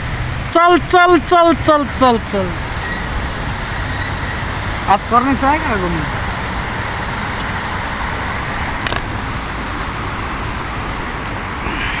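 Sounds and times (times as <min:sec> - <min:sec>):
vehicle road noise: 0:00.0 - 0:12.0.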